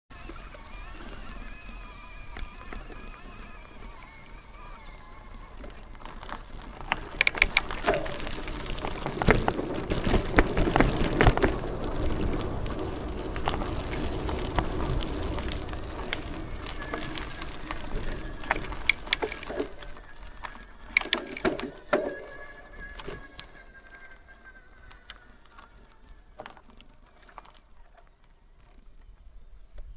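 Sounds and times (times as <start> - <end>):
bicycle tyres crunching on gravel: 0.1 - 29.7
stones and bike clicking: 0.1 - 29.9.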